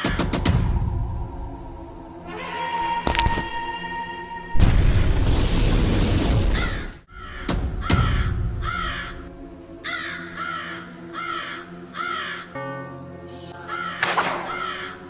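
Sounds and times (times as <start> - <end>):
background music: 0.0 - 6.0, 6.7 - 15.0
crow cawing: 6.6 - 12.6, 13.7 - 15.0.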